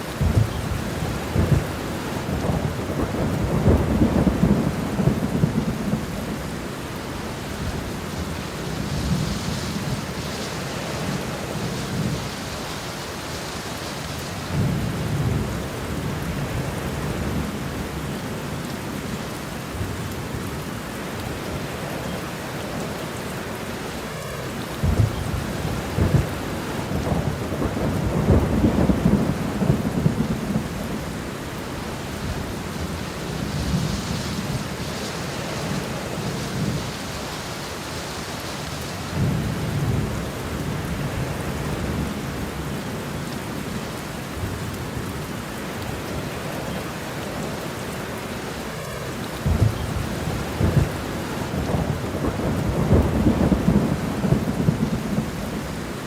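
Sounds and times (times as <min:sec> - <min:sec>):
thunder rumbling: 0:00.0 - 0:12.7, 0:24.2 - 0:37.8, 0:38.4 - 0:46.9, 0:48.2 - 0:56.0
steady rain: 0:00.0 - 0:56.0.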